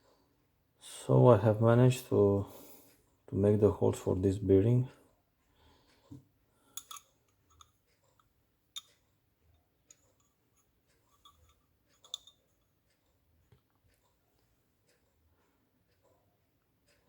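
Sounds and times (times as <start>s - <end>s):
faint clicks of small parts: 4.9s - 16.2s.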